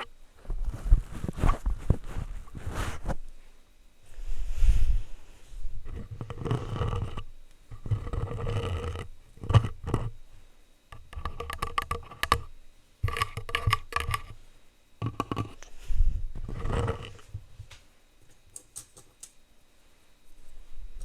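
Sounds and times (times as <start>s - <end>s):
plastic utensils scraping microphone: 0.0s - 3.2s, 5.8s - 10.2s, 11.0s - 14.4s, 15.0s - 15.7s, 16.3s - 17.6s.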